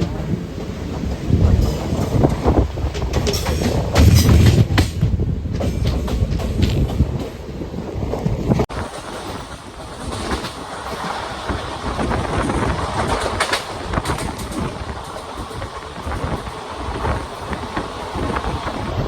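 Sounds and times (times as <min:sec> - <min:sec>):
train rumble on track: 0:00.0 - 0:19.0
wheel clicks over rail joints: 0:00.0 - 0:19.0.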